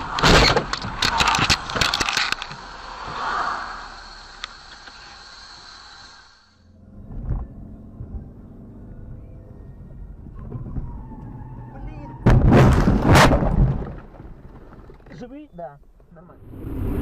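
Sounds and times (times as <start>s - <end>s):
low vehicle rumble: 1.6s - 11.8s
car crash impacts: 12.2s - 15.0s.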